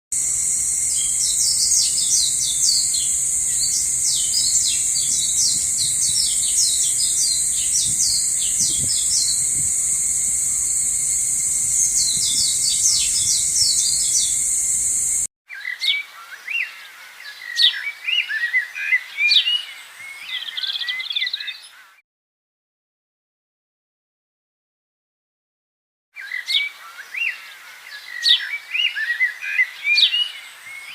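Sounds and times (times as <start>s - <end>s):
steady high-pitched hiss: 0.2s - 15.3s
songbirds chirping: 0.2s - 18.4s
varied birdsong: 0.2s - 22.0s, 26.2s - 30.9s.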